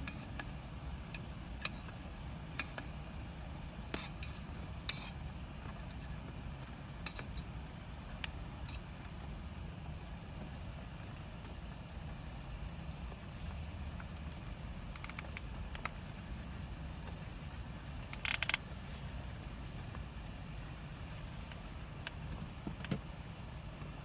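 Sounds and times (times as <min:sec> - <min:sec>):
bonfire crackling and popping: 0:00.0 - 0:24.0.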